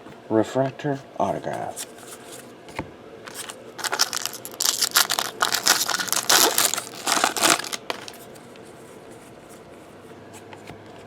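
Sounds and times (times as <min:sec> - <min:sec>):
foil wrapper tearing and crinkling: 0:03.3 - 0:08.2.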